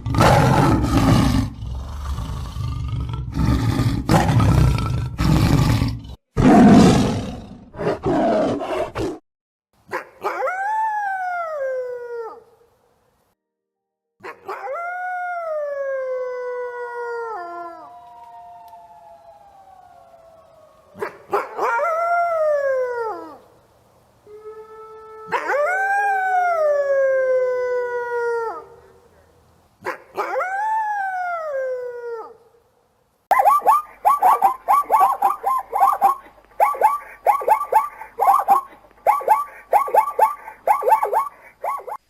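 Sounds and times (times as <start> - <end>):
dogs howling: 14.5 - 23.4, 24.7 - 28.8, 33.3 - 42.0.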